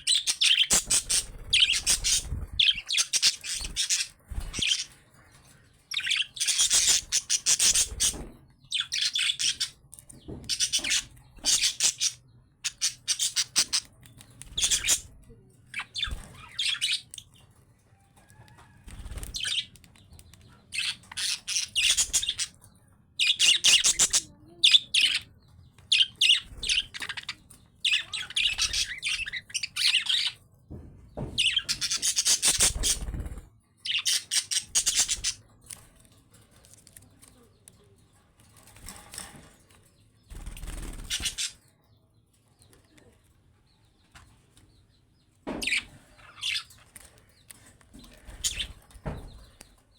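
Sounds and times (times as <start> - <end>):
budgerigars chattering and chirping: 0.0 - 5.0, 5.9 - 17.4, 20.6 - 22.6, 23.2 - 30.4, 31.4 - 35.4, 40.4 - 41.7, 45.5 - 46.8, 48.0 - 49.6.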